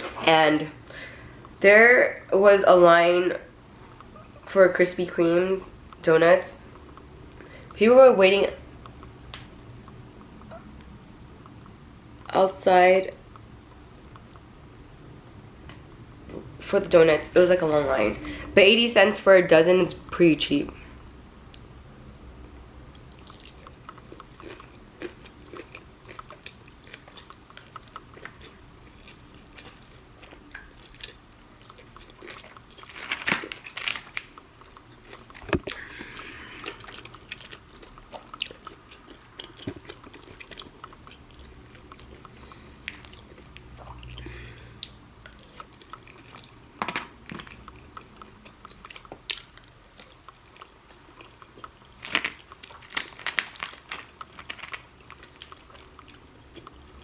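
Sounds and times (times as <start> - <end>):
food crunches and clicks: 22.4 - 57.0
person chewing and biting food: 22.4 - 57.0.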